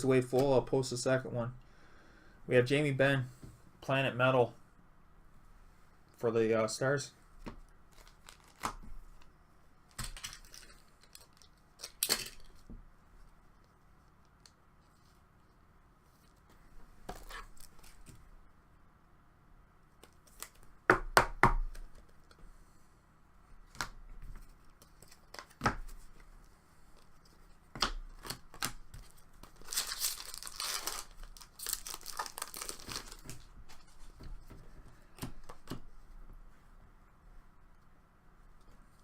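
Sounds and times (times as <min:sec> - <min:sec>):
wrapper tearing and crinkling: 0:07.9 - 0:08.8, 0:10.0 - 0:12.5, 0:29.5 - 0:33.5.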